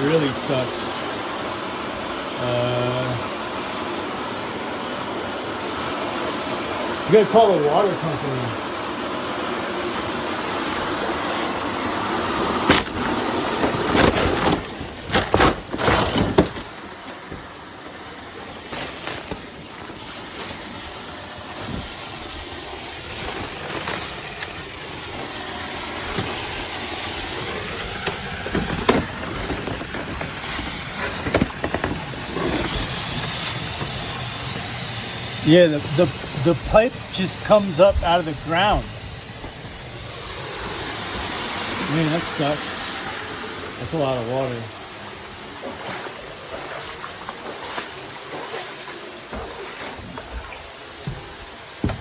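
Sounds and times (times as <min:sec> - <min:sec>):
water hissing from broken pipe: 0:00.0 - 0:52.0
knocks and clatters: 0:51.0 - 0:52.0.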